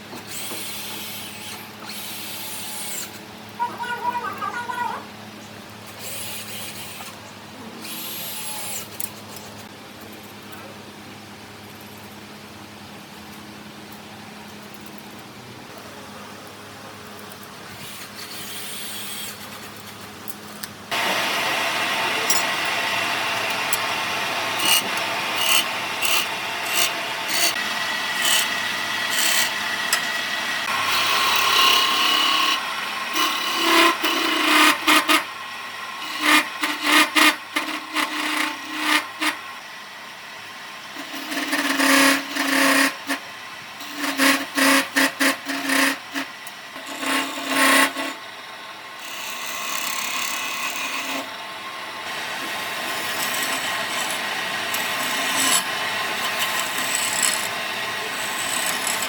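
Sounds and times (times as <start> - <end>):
tool rasping wood: 20.9 - 35.3, 36.0 - 39.4, 41.0 - 43.2, 43.8 - 48.2, 49.0 - 51.3, 52.1 - 59.0.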